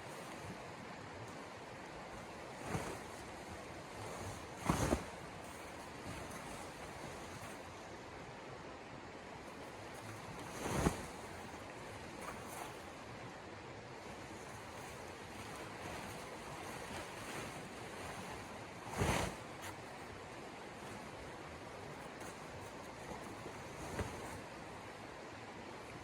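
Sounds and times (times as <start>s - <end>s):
snowstorm wind: 14.0s - 25.2s.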